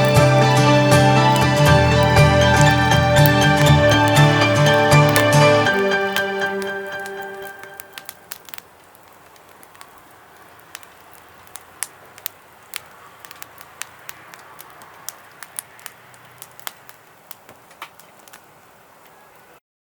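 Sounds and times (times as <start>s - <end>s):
faint steady hiss: 0.0s - 19.6s
wood fire crackling: 0.0s - 19.6s.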